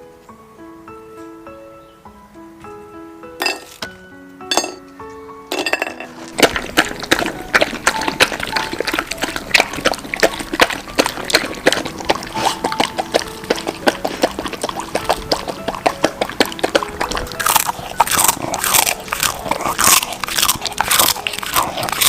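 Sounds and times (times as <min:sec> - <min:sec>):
light background music: 0:00.0 - 0:22.0.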